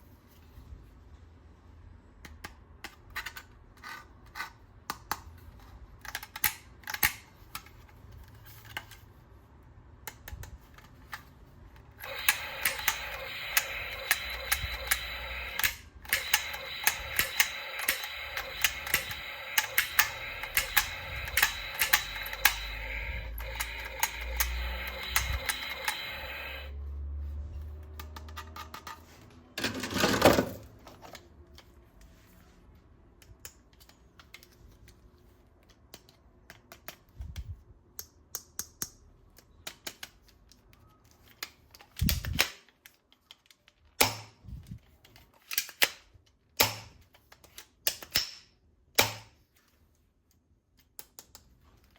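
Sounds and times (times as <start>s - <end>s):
plastic toy gun clicking: 6.0s - 7.7s, 12.0s - 26.7s, 45.1s - 49.4s
steady hum: 12.0s - 26.8s.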